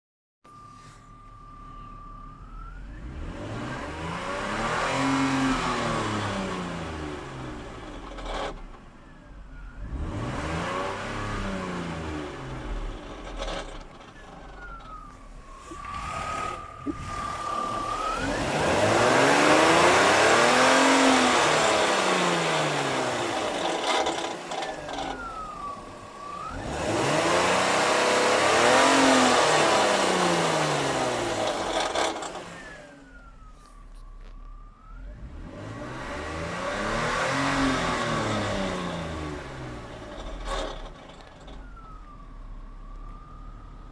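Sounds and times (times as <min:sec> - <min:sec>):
car engine revving: 0:02.5 - 0:09.0, 0:09.6 - 0:33.5, 0:34.2 - 0:42.2
high whine at idle: 0:12.4 - 0:34.4.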